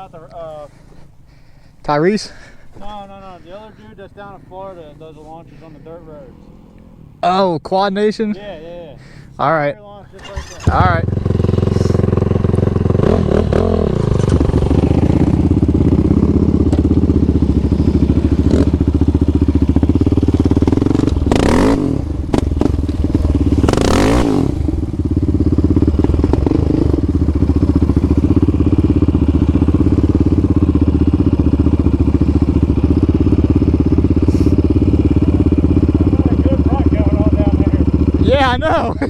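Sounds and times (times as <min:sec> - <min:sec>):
quad engine running: 0:10.1 - 0:39.0
machine revving past: 0:10.2 - 0:28.9.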